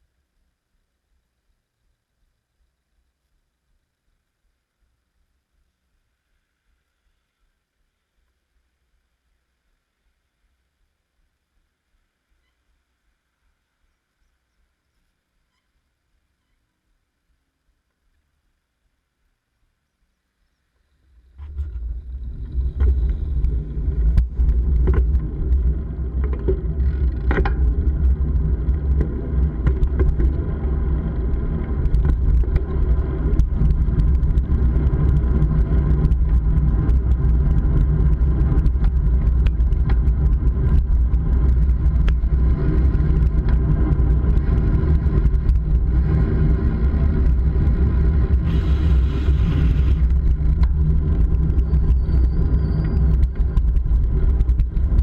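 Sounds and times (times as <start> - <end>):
bike riding rumble: 0.0 - 55.0
wind buffeting microphone: 21.2 - 55.0
small rattles and clicks: 21.3 - 55.0.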